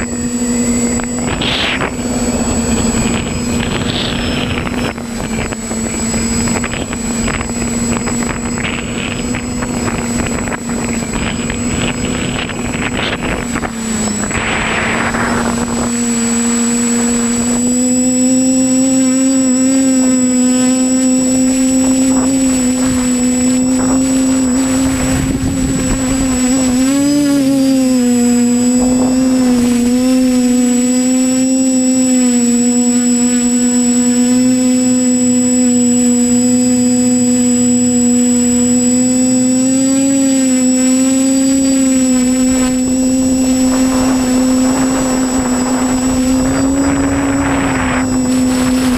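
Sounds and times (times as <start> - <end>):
drone propellers buzzing: 0.0 - 48.9
wind on microphone: 0.0 - 48.9.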